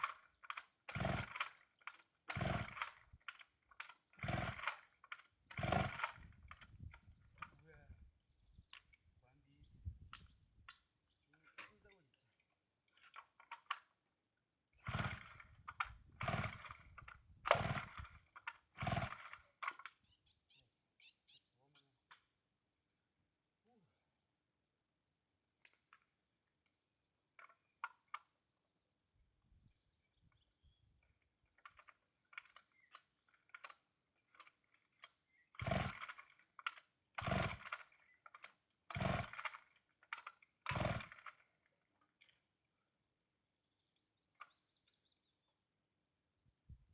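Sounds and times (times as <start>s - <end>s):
engine cranking: 0.0s - 7.6s, 14.8s - 20.1s, 31.5s - 41.6s
chainsaw starter cord pulls: 0.0s - 7.8s, 11.4s - 12.0s, 12.8s - 14.0s, 14.7s - 20.1s, 27.3s - 28.4s, 31.0s - 42.6s.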